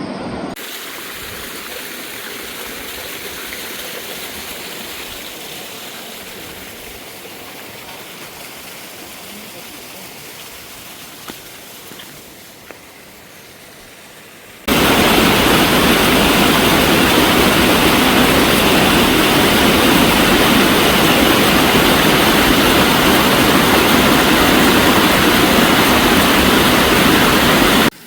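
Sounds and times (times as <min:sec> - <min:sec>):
faint stream flow: 0:00.5 - 0:28.0
loud rushing water: 0:00.5 - 0:28.0.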